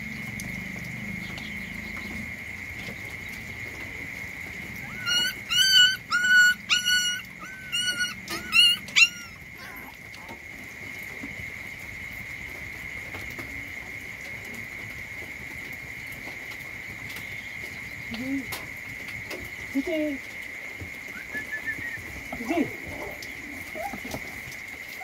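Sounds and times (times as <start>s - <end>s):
high insect drone: 0.0s - 25.0s
puppy whimpering: 4.8s - 10.4s, 22.4s - 24.2s.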